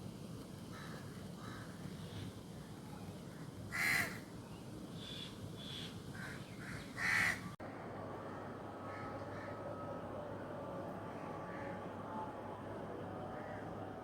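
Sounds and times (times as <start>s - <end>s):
faint humming tones: 7.6s - 14.0s.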